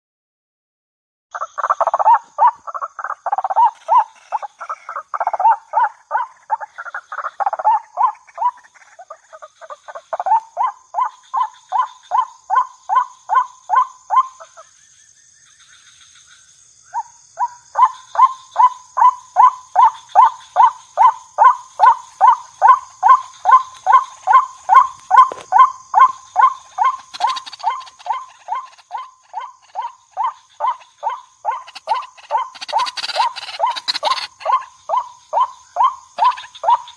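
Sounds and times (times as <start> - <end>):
waterhen calling: 1.4 - 12.2, 21.4 - 36.9.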